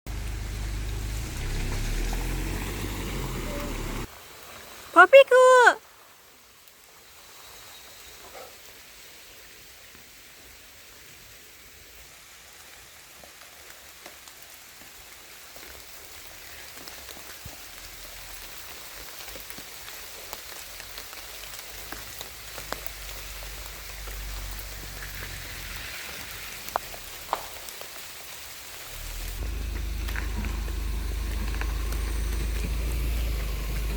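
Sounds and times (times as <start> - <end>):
raindrops ticking: 0.1 - 4.1, 13.4 - 33.9
rain falling in forest: 0.1 - 33.9
low rumble: 28.9 - 33.9.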